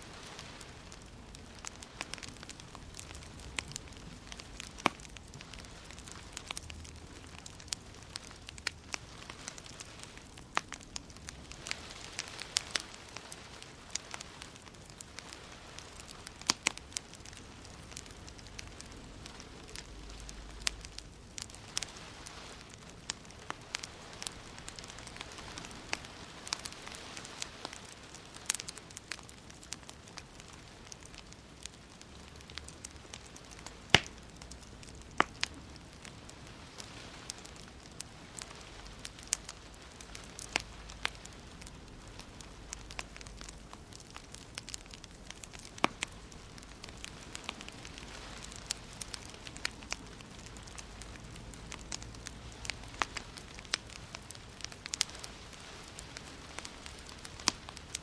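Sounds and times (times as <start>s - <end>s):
wood fire crackling: 0.0s - 58.0s
sharp pop from fire: 33.9s - 34.2s.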